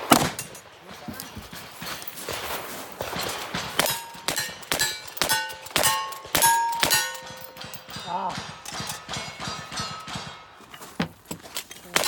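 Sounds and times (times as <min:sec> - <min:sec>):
gunshots: 0:00.0 - 0:10.6
steel targets clanging: 0:00.2 - 0:00.8, 0:03.2 - 0:12.0.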